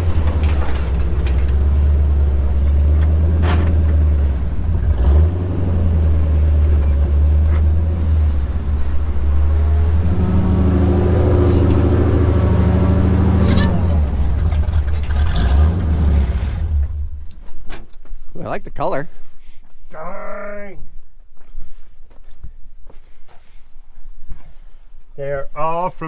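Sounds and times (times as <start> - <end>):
truck engine droning: 0.0 - 17.6.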